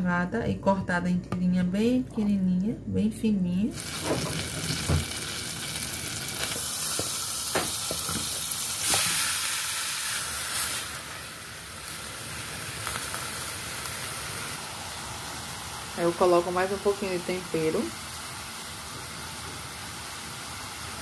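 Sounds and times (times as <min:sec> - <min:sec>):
garlic and onion sizzling in oil: 0:03.7 - 0:21.0
meat dropped into sizzling pan: 0:03.9 - 0:05.3, 0:06.3 - 0:09.2.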